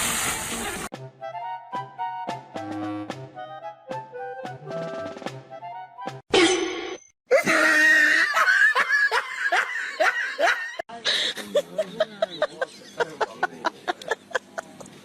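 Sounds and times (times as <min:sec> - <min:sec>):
people laughing: 0:08.0 - 0:15.0.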